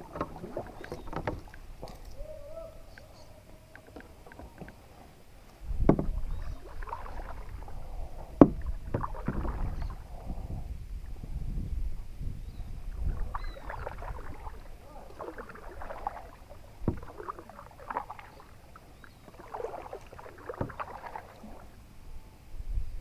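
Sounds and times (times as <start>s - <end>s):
kayak paddle splashing in water: 0.0s - 5.0s, 5.6s - 10.2s, 12.8s - 21.8s
sharp knocks: 5.8s - 6.2s, 8.4s - 9.5s.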